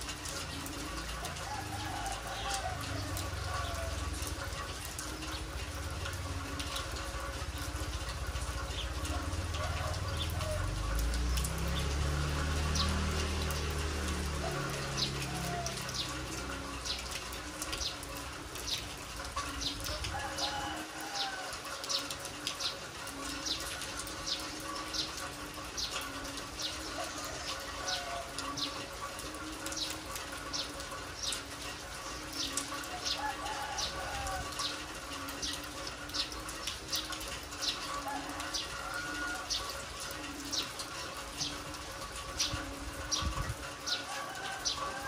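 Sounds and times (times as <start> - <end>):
heavy rain: 0.0 - 45.0
water drips and splashes: 0.0 - 45.0
dove cooing: 0.3 - 5.8, 8.8 - 10.9, 14.3 - 19.0, 25.9 - 30.4.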